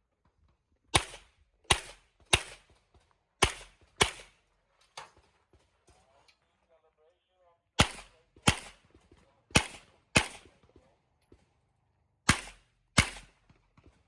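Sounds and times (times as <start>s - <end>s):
handgun shots: 0.9s - 2.6s, 3.4s - 4.3s, 7.8s - 8.8s, 9.5s - 10.5s, 12.3s - 13.3s.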